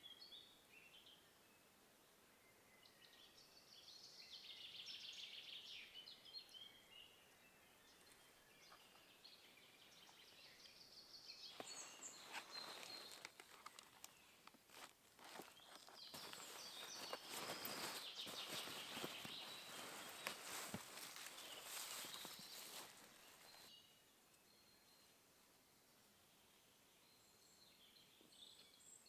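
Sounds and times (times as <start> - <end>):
faint songbird trill: 0.0 - 14.5, 15.3 - 29.0
rustling: 11.5 - 23.7.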